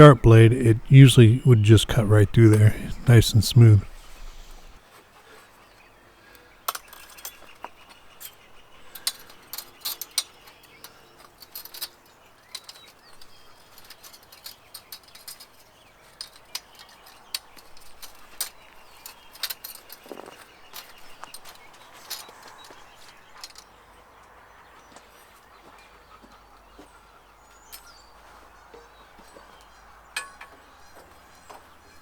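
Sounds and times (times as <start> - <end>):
light clicks and metallic clinks: 6.3 - 23.9, 27.5 - 32.0.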